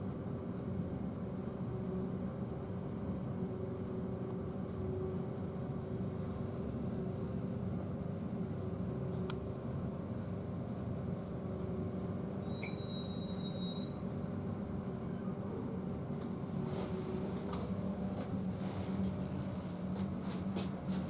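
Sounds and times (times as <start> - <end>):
ventilation hum: 0.0 - 13.2, 13.8 - 21.0.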